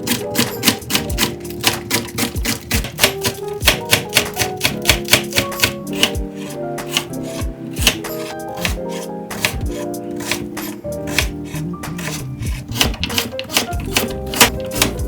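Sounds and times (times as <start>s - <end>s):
background music with plucked notes: 0.0s - 15.0s
knife chopping on cutting board: 0.0s - 15.0s.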